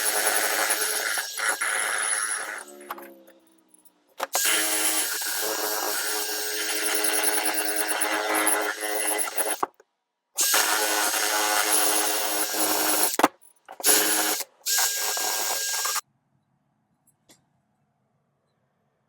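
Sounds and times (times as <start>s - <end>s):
handheld power tool running: 0.0s - 2.9s, 4.2s - 9.8s, 10.4s - 16.0s.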